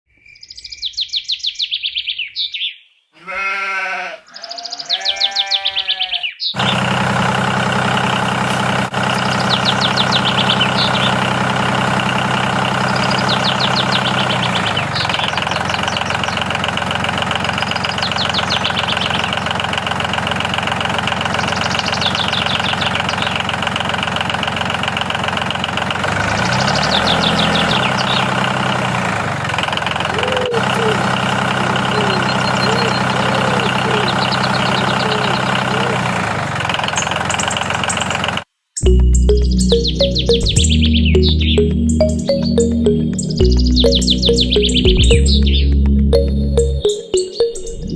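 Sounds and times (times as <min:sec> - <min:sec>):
bleats: 0:03.2 - 0:06.3, 0:30.0 - 0:36.2
engine drone: 0:06.6 - 0:47.9.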